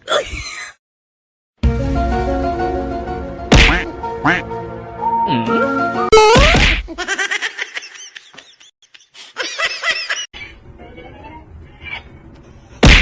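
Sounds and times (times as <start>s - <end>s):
person laughing: 6.4s - 10.3s.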